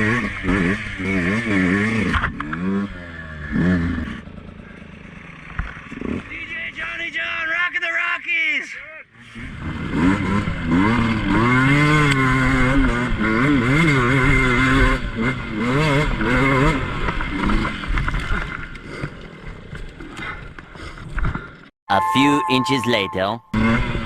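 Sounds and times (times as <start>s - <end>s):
dirt bike engine revving: 0.0s - 4.6s, 9.4s - 17.9s.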